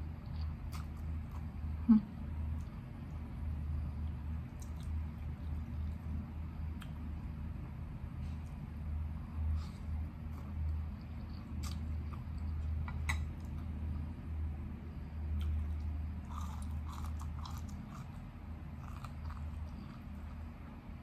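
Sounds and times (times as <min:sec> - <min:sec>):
chewing crunchy food: 0:00.2 - 0:01.6, 0:02.4 - 0:07.1, 0:09.7 - 0:13.8, 0:15.3 - 0:20.8.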